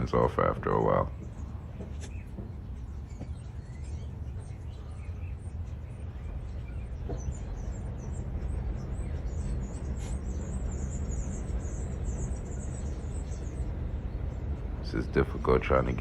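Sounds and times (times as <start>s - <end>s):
birds chirping: 0.0s - 16.0s
low outdoor rumble: 0.0s - 16.0s.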